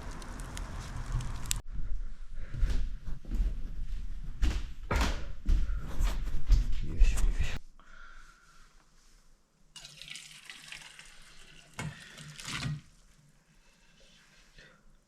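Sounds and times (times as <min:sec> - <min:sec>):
water running from a tap: 0:09.8 - 0:12.8.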